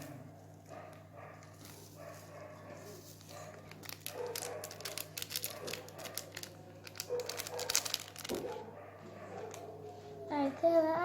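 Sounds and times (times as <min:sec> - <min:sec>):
paper sachet crinkling: 0:01.4 - 0:08.7, 0:09.4 - 0:09.7.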